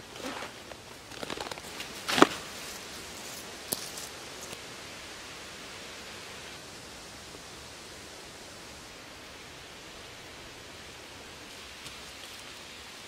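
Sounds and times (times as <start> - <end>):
backpack rustling on leaves: 0.0 - 4.6
steady hiss: 0.0 - 13.0.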